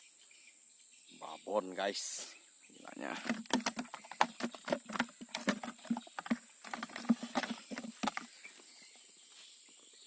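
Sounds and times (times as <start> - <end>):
fish slapping against ground: 3.1 - 8.5.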